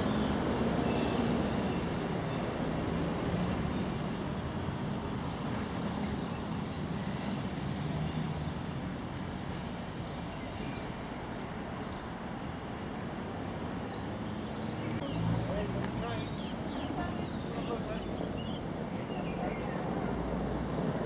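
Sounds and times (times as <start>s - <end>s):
diesel train rumbling on rails: 0.0s - 14.3s, 14.9s - 21.0s.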